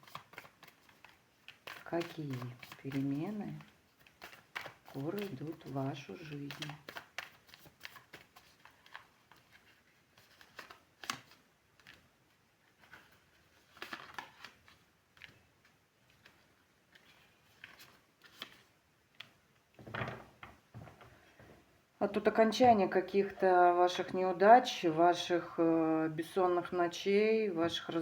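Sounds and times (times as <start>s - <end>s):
cards rustling and clicking: 0.0s - 20.6s.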